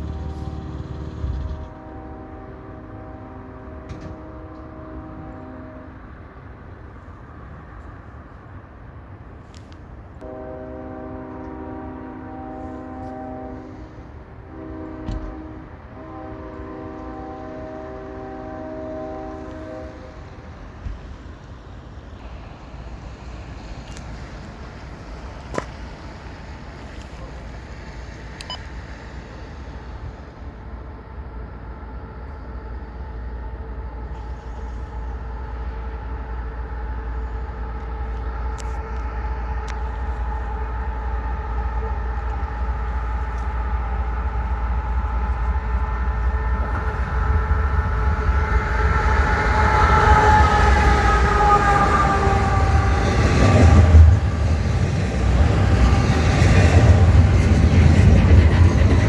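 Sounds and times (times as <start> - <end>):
locomotive tones: 0.0 - 6.7, 23.2 - 59.0
freight train rumble: 0.0 - 59.0.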